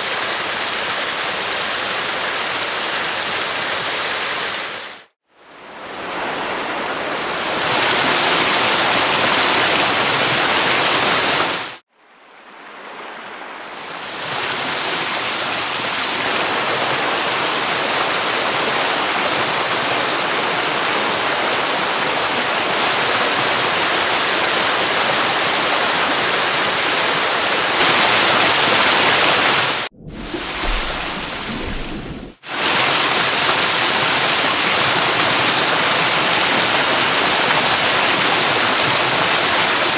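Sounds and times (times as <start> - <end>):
rushing water: 0.0 - 39.9
deep rumble: 29.8 - 32.4.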